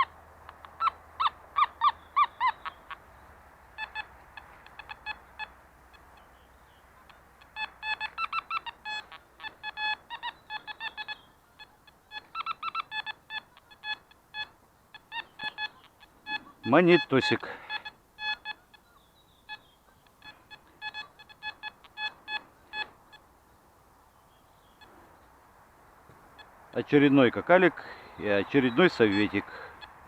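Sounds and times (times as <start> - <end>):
metal detector beeping: 7.6 - 9.0, 15.4 - 18.6, 19.5 - 23.2.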